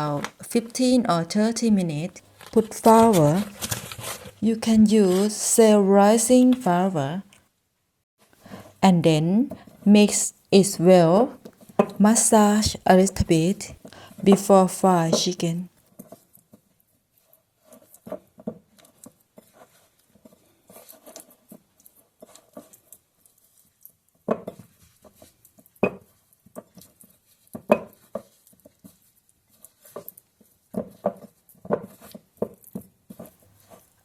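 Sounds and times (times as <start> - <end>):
hands mixing chicken in bowl: 0.0 - 6.6.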